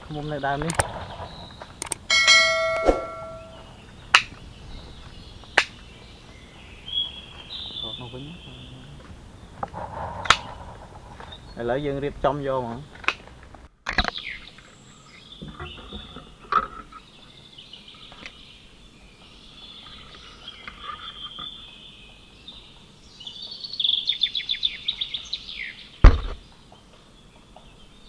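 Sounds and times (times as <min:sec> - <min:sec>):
birds chirping: 0:00.0 - 0:28.0
sharp knock: 0:02.1 - 0:03.6.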